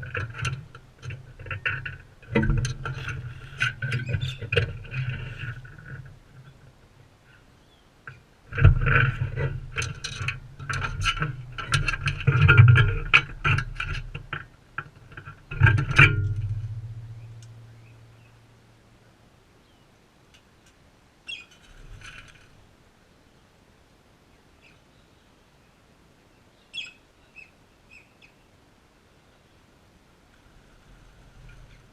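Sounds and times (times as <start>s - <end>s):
hollow ringing: 15.1s - 18.8s.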